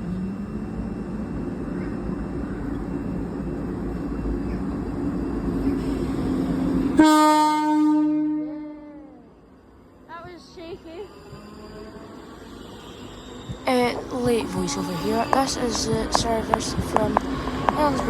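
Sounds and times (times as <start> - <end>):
train rumbling: 0.0 - 18.0
train horn blast: 6.8 - 9.3.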